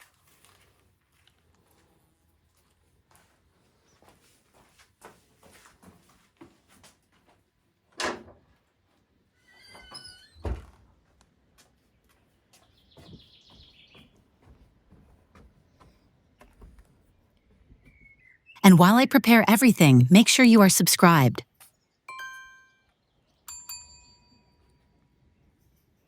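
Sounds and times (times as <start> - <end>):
high fine trill: 18.6 - 21.4.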